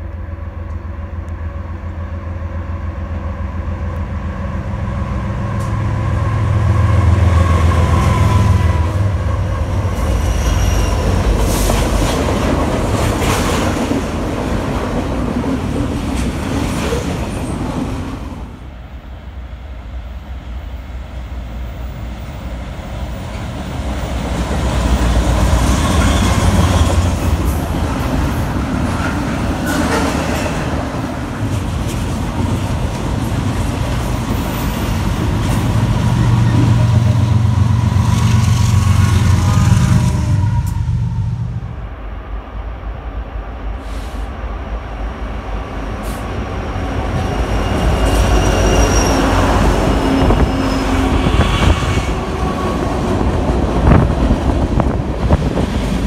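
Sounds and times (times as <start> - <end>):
diesel locomotive engine rumble: 0.0 - 56.0
train cars clattering over rails: 9.7 - 18.3, 23.2 - 37.3.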